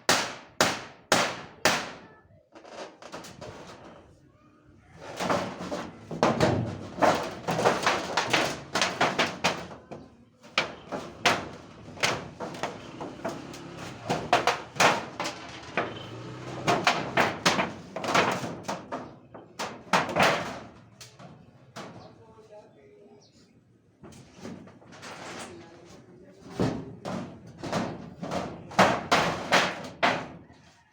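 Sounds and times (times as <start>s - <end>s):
knocks and bangs: 0.0s - 2.1s, 4.9s - 22.3s, 26.4s - 30.5s.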